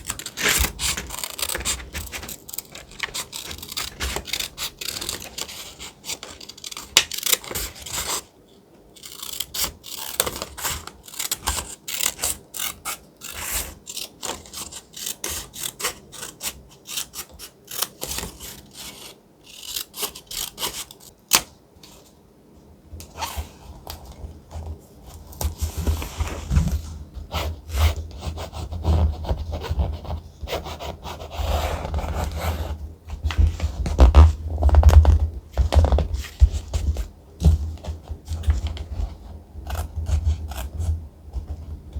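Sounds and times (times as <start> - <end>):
thick paper rustling: 0.0 - 8.0.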